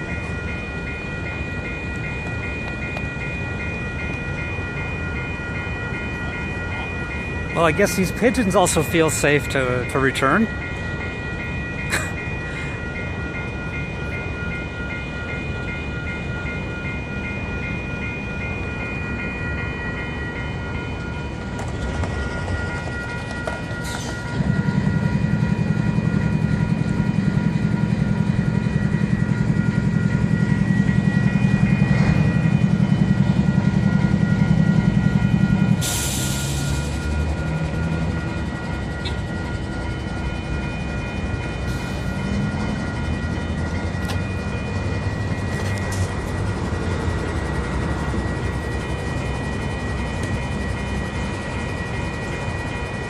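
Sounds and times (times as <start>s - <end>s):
level crossing warning bells: 0.0s - 53.0s
train engine rumble: 0.0s - 53.0s.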